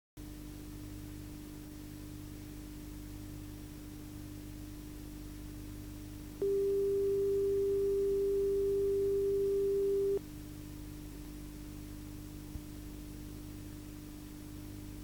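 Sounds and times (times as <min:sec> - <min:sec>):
low hum: 0:06.4 - 0:10.2
steady test tone: 0:06.4 - 0:10.2
tape hiss: 0:06.4 - 0:10.2.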